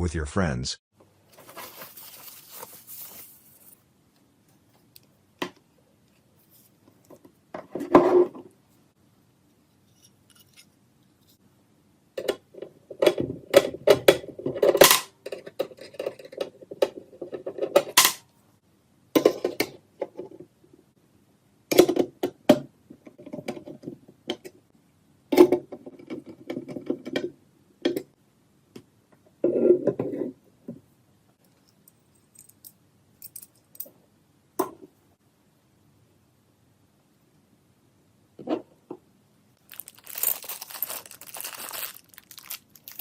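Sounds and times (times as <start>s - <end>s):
hard objects clicking and rattling: 39.6s - 43.0s.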